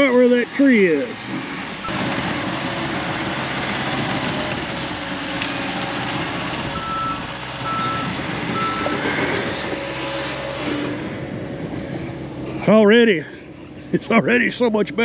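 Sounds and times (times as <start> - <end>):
diesel engine under load: 0.0 - 15.0
backup alarm beeping: 6.8 - 9.2.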